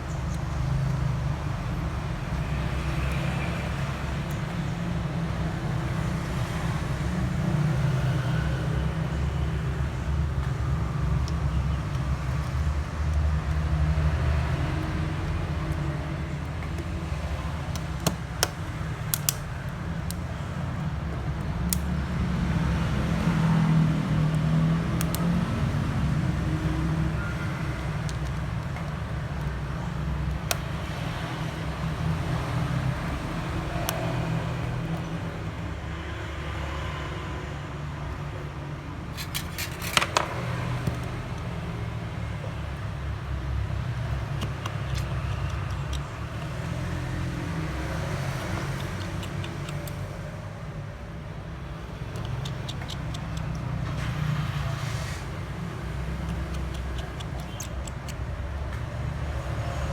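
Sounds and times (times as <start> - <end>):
sharp clicks: 15.7 - 22.0, 44.0 - 50.3, 51.8 - 54.3, 55.8 - 59.1.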